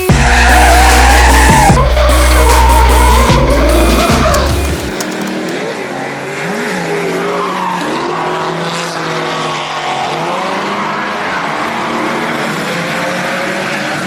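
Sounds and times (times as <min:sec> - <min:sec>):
tyre squeal: 0:00.0 - 0:05.5
car engines revving: 0:00.0 - 0:14.0.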